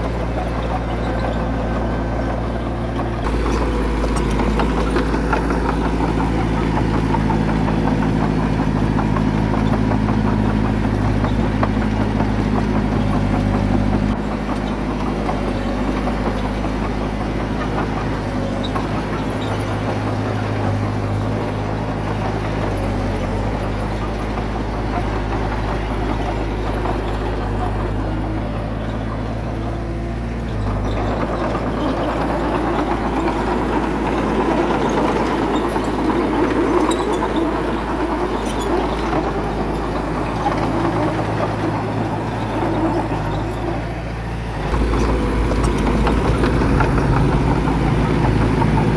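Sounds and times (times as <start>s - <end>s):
heavy diesel engine running: 0.0s - 48.9s.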